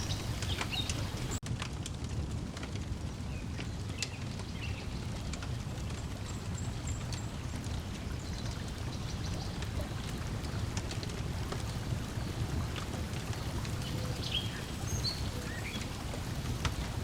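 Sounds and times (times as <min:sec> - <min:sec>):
lake water lapping: 0:00.0 - 0:01.4, 0:05.2 - 0:17.0
wood fire crackling and popping: 0:00.0 - 0:17.0.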